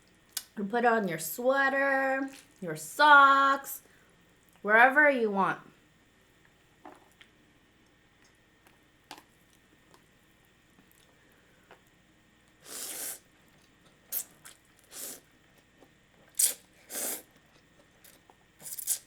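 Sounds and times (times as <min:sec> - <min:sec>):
short slurps: 0:12.6 - 0:13.3, 0:14.1 - 0:15.3, 0:16.3 - 0:17.3.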